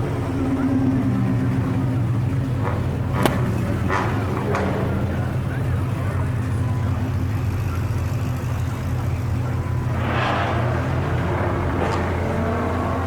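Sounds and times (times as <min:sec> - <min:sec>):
car engines idling: 0:00.0 - 0:13.0
rush of noise: 0:09.8 - 0:13.0.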